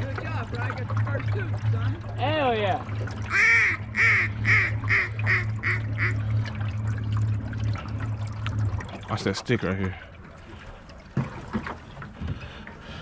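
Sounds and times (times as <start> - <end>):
steady low hum: 0.0 - 13.0
duck quacking: 3.3 - 6.2.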